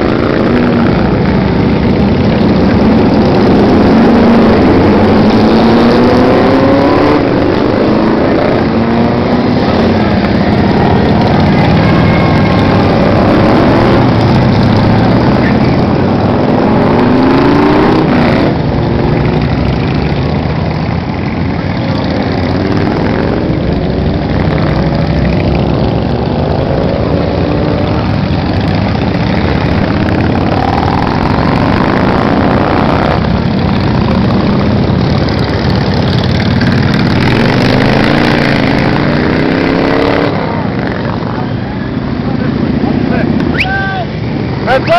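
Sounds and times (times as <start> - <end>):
motorcycles riding past: 0.0 - 44.9.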